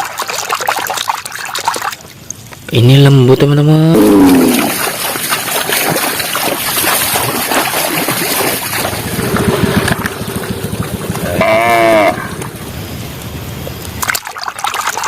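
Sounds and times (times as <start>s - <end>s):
water splashing in a basin: 0.0s - 2.8s, 3.9s - 11.3s, 14.0s - 15.0s
short voice-like call: 11.2s - 12.4s.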